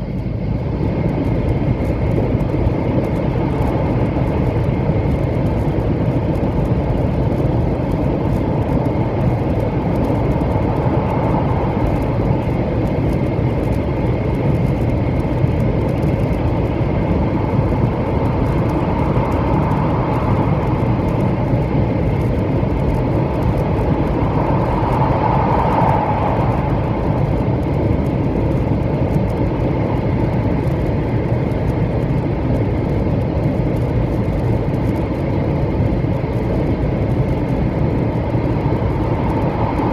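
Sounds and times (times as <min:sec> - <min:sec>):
mid-pitched hum: 0:00.0 - 0:39.9
train rumble of wheels and air: 0:00.0 - 0:39.9
faint high whine: 0:15.9 - 0:28.8.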